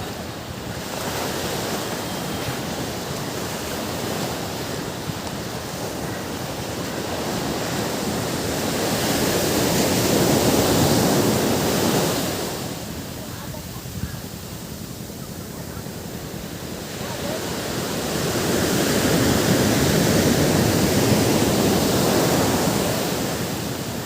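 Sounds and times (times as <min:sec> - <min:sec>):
ocean waves breaking on beach: 0:00.0 - 0:24.0.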